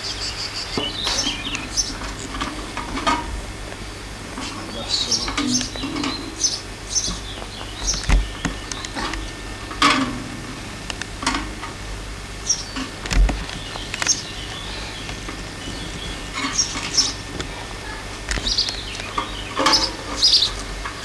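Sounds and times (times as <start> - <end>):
birds chirping: 0.0 - 2.6, 3.9 - 9.6, 12.4 - 20.7.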